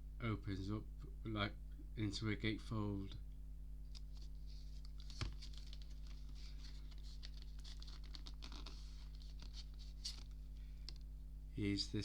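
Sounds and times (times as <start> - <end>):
rustling of card and plastic: 3.8 - 11.1.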